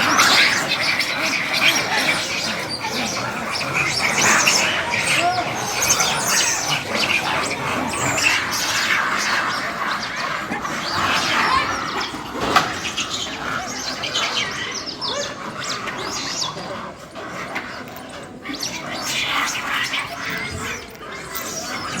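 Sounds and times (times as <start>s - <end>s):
monkeys shrieking and squealing: 0.0s - 22.0s.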